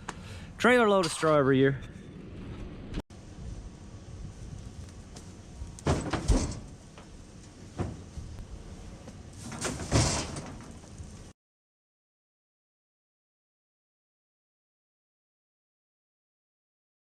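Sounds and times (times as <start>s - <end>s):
low steady rumble: 1.6s - 11.3s
rattling clatters: 5.8s - 7.1s, 9.4s - 11.0s.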